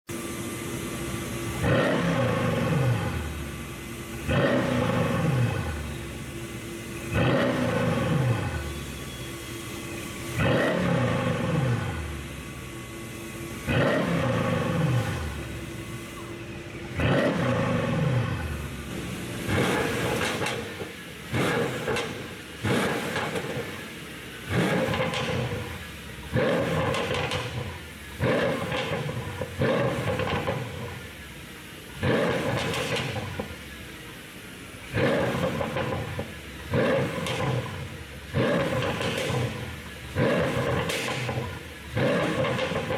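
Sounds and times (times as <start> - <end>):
car engine revving: 1.4 - 31.3, 31.9 - 33.7, 34.8 - 42.9
exhaust pops and crackles: 19.5 - 23.9, 24.5 - 31.0, 32.0 - 33.6, 34.9 - 42.9.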